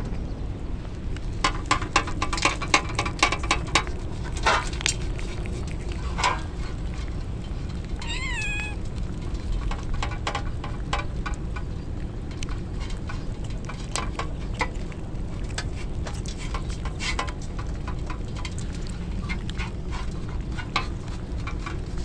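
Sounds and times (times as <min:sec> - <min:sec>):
kitten meowing: 0:08.0 - 0:08.8.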